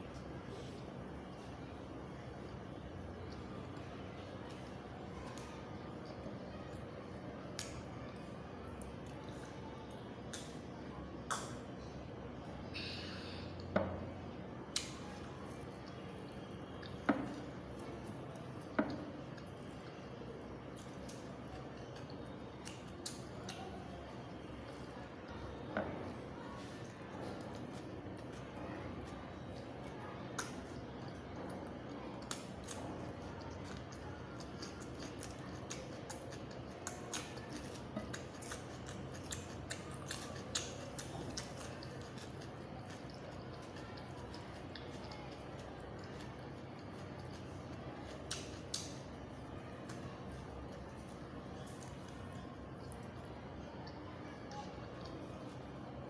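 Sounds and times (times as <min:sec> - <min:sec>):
wet mouth eating noises: 0:11.2 - 0:11.7, 0:14.6 - 0:25.3, 0:25.9 - 0:56.0
sharp mouth clicks: 0:11.3 - 0:11.6
crunchy food chewing: 0:14.7 - 0:56.0.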